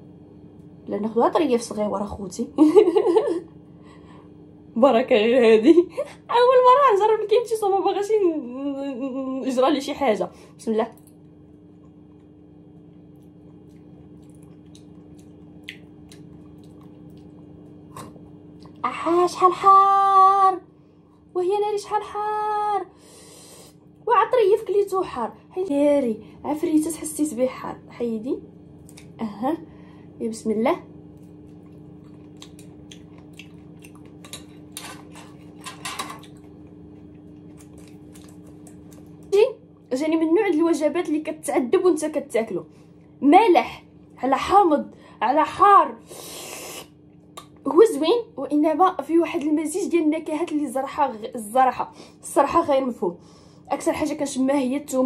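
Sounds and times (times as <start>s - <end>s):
person chewing food: 11.1s - 18.8s, 31.1s - 39.3s.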